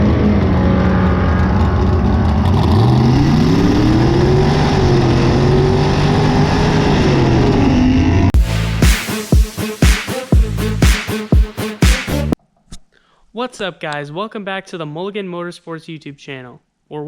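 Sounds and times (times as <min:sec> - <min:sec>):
car engine accelerating: 0:00.0 - 0:09.8
music with heavy beat: 0:08.4 - 0:12.4.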